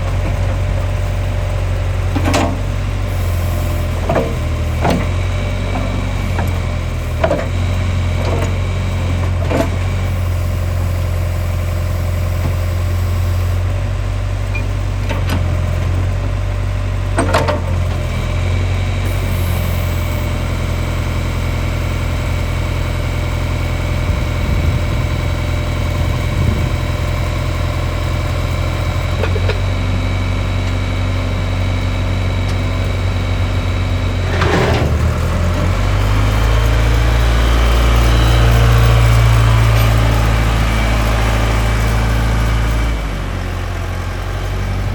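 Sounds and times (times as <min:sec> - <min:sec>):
diesel engine idling: 0:00.0 - 0:44.9.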